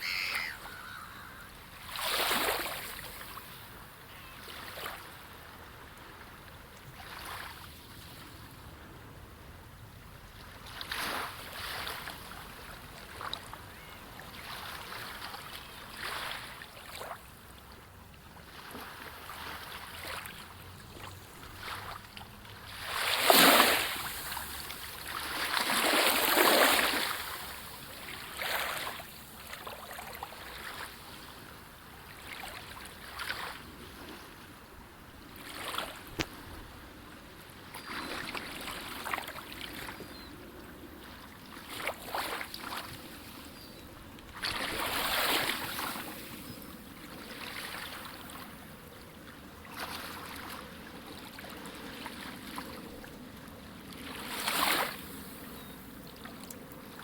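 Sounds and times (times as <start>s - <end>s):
waves washing in: 0.0s - 3.8s, 18.4s - 37.1s, 44.4s - 48.8s, 49.6s - 56.0s.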